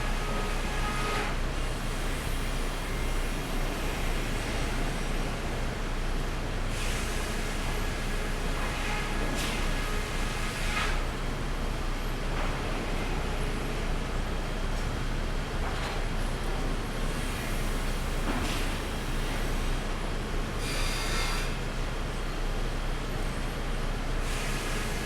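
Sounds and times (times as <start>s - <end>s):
sawmill machinery humming: 0.0s - 11.1s.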